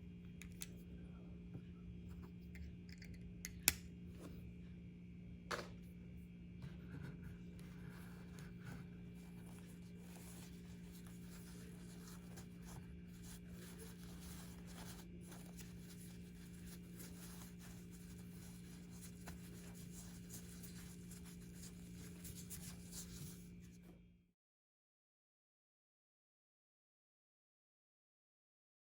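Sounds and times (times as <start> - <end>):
steady low hum: 0.0 - 24.0
faint scratchy rubbing: 6.8 - 23.7.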